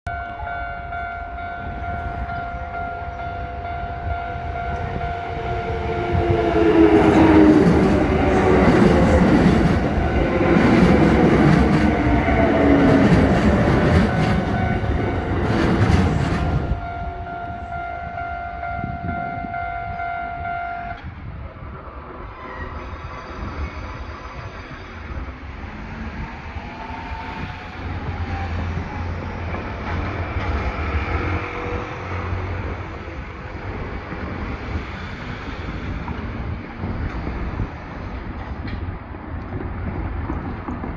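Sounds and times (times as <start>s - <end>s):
level-crossing alarm ringing: 0.1s - 21.0s
train rumbling past: 0.1s - 40.9s.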